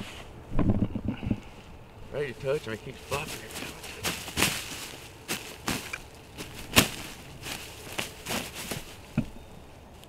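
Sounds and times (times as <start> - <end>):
turkey wings beating on ground: 2.4 - 9.4.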